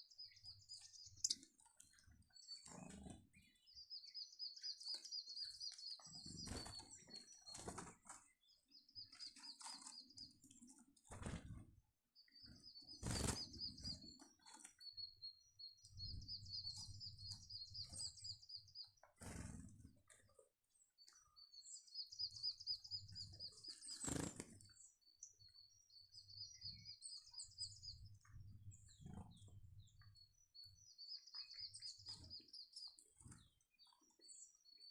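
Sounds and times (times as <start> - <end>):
small birds chirping: 0.0 - 34.9
wing flutters: 6.1 - 8.3, 11.1 - 11.7, 12.9 - 14.7, 19.2 - 19.9, 23.8 - 24.7.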